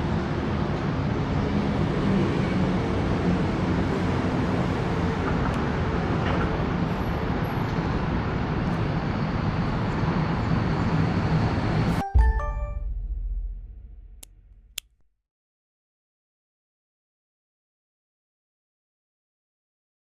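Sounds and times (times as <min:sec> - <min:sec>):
road traffic rumbling hiss: 0:00.0 - 0:11.9
short chime-like tones: 0:12.0 - 0:13.0.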